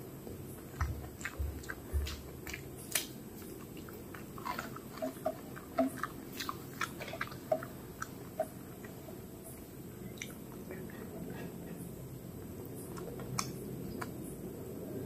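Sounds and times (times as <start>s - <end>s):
fingers mixing rice on plate: 0.0s - 9.6s
wet chewing mouth smacks: 0.6s - 9.0s
soft low thumps: 0.7s - 2.5s.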